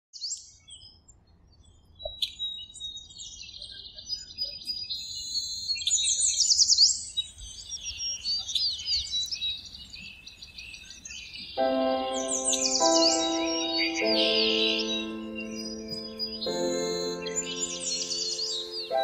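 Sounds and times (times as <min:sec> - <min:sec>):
songbirds chirping and singing: 0:01.6 - 0:19.0.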